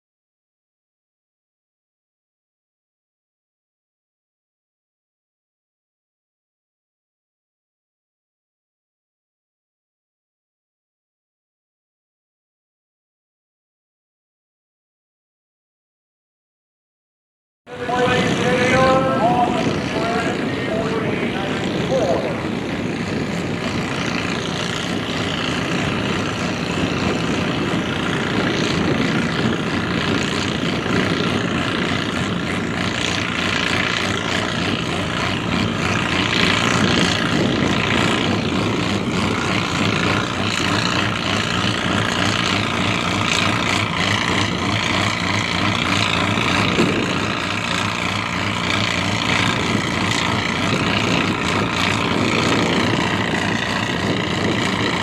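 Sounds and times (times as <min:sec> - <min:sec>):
tractor engine under load: 0:17.7 - 0:55.0.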